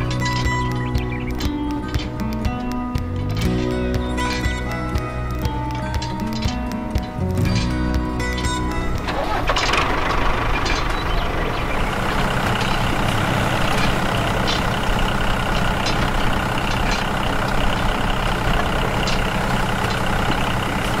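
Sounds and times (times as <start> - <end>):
faint ticks: 0.0 - 9.1
diesel tractor engine running: 0.0 - 21.0.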